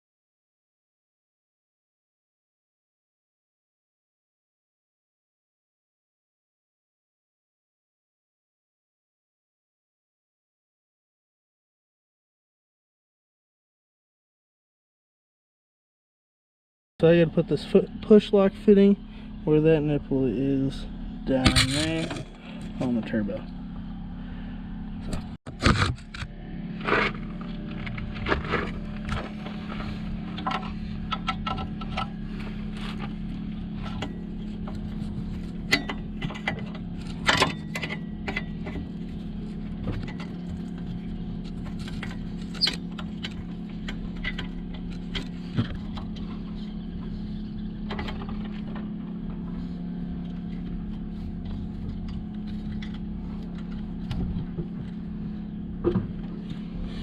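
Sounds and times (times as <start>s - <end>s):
low steady hum: 17.0s - 57.0s.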